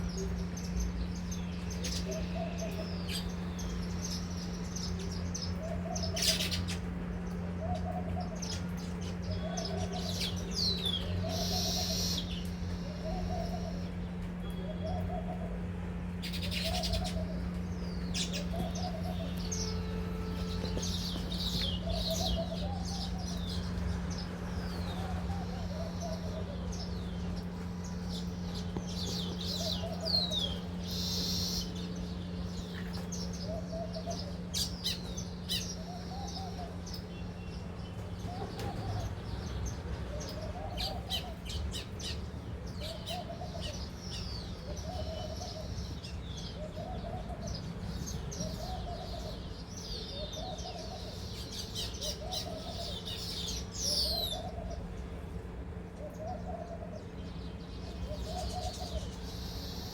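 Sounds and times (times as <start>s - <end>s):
birds chattering and chirping: 0.0s - 59.9s
steady low hum: 0.0s - 59.9s
low hooting call: 7.4s - 39.3s.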